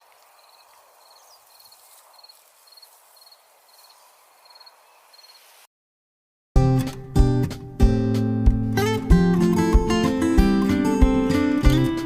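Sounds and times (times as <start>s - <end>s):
cricket chirping: 0.0s - 5.5s
faint outdoor background noise: 0.0s - 5.7s.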